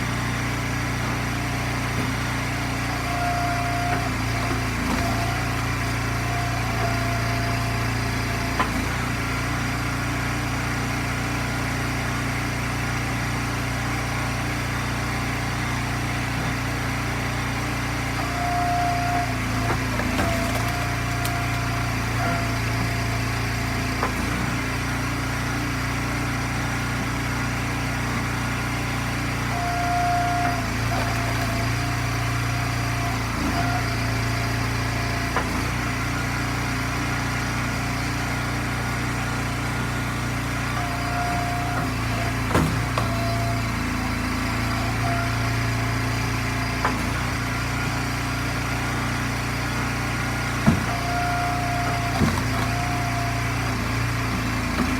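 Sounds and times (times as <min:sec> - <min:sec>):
log splitter engine running: 0:00.0 - 0:54.9.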